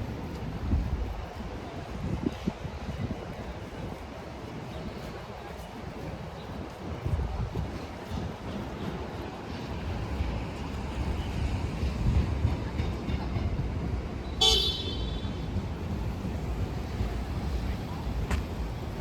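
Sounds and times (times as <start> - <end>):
traffic rumble: 4.6 - 19.0
car horn toot: 14.4 - 15.3.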